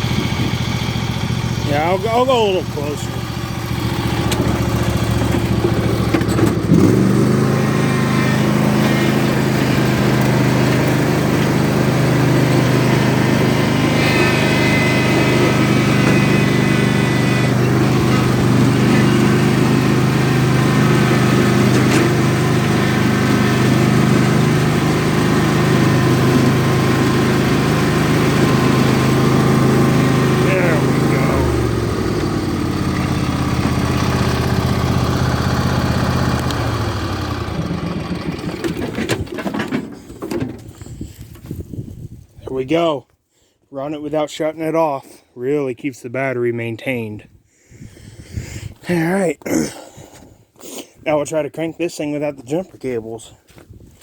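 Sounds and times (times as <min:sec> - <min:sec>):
riding lawn mower engine: 0:00.0 - 0:41.6.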